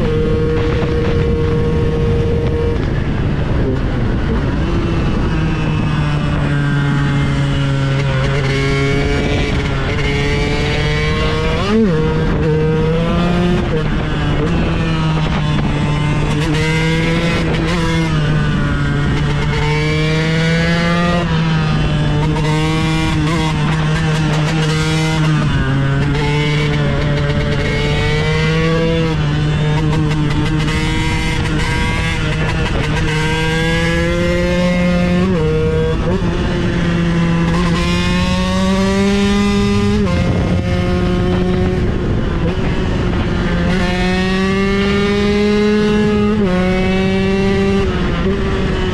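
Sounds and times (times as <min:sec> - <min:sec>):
two-stroke motorcycle engine revving: 0:00.0 - 0:48.9.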